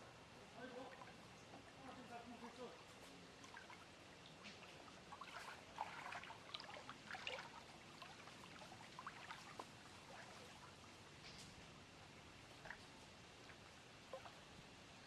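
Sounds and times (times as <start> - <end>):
lake water lapping at shore: 2.8 - 14.8.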